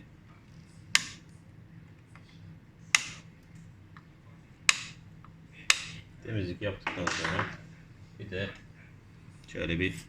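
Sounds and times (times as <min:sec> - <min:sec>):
side cutters snipping leads: 0:00.8 - 0:01.3, 0:02.1 - 0:06.2.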